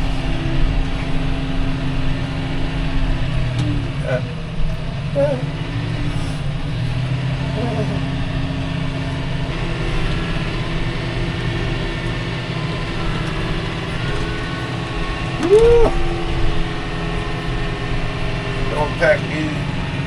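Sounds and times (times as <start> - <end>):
tractor engine running under load: 0.0 - 20.0
tone rising and falling in pitch: 11.5 - 18.0.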